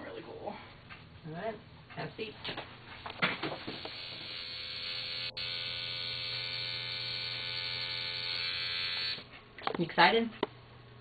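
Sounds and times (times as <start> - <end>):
tattoo machine buzzing: 3.7 - 9.3.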